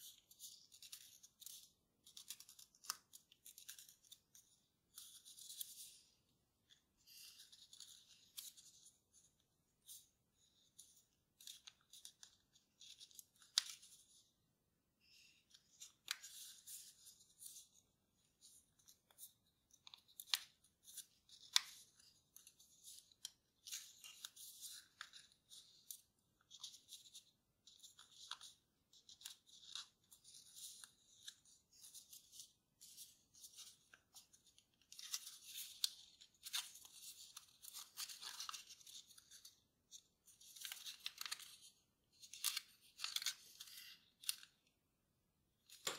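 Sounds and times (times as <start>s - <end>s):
paper rustling and crinkling: 15.1s - 44.7s.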